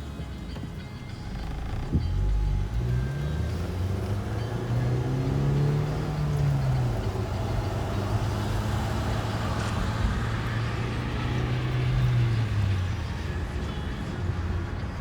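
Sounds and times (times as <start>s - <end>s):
car engine humming: 0.0s - 15.0s
road and wind noise: 0.0s - 15.0s.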